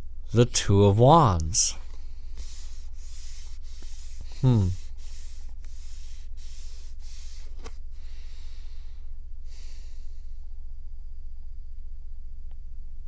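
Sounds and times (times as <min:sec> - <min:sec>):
low room hum: 0:00.0 - 0:13.0
soft breath-like hiss: 0:01.5 - 0:10.5.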